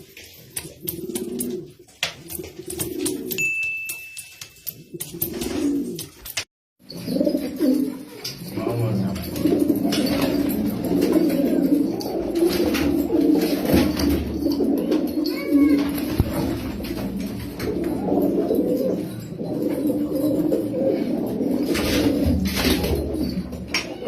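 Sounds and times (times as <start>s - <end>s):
pigeons cooing: 0.0s - 3.4s, 4.8s - 6.2s, 6.8s - 24.0s
higher pigeon call: 6.8s - 24.0s.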